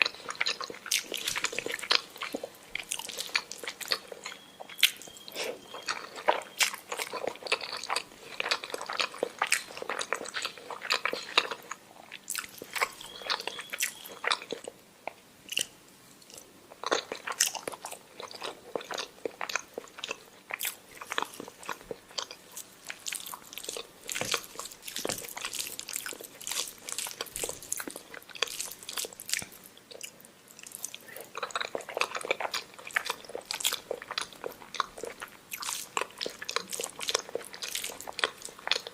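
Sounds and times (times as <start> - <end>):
person chewing with wet smacks: 0.0 - 38.9.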